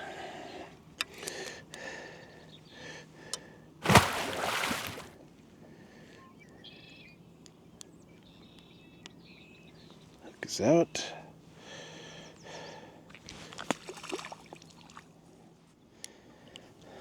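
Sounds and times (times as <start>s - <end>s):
fish splashing and rustling: 3.8s - 5.2s, 13.4s - 15.0s
faint bird chirps: 6.1s - 10.2s.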